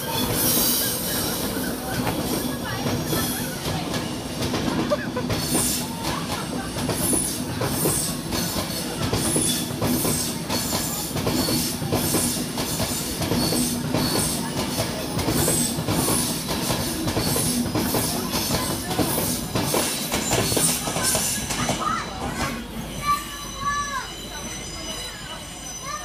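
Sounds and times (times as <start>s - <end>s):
train hum: 0.0s - 26.0s.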